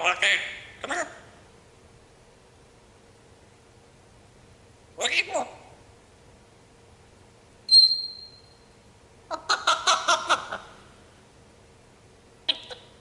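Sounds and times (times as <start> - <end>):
parrot harsh chattering: 0.0 - 1.3, 5.0 - 5.7, 9.3 - 10.9, 12.5 - 13.0
parrot whistle: 7.7 - 8.6
parrot squawk: 9.3 - 10.8, 12.5 - 13.0.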